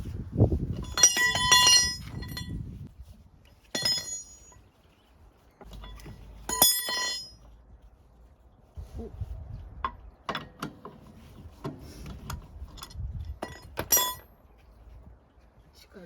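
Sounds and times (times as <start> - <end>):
metal tools clinking and ringing: 0.8 - 2.6, 3.7 - 4.6, 5.7 - 7.5, 12.8 - 14.3.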